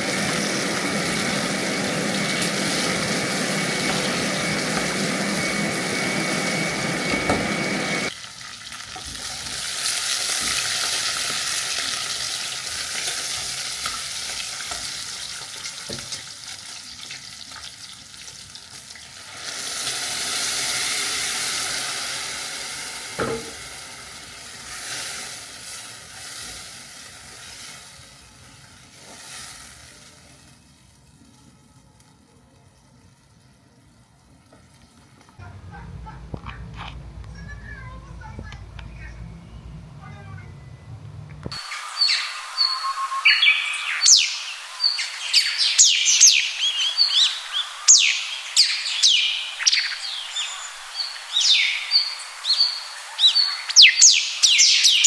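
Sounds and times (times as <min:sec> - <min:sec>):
blender whining: 0:00.0 - 0:08.1
food sizzling in a pan: 0:00.0 - 0:35.4, 0:41.5 - 0:55.0.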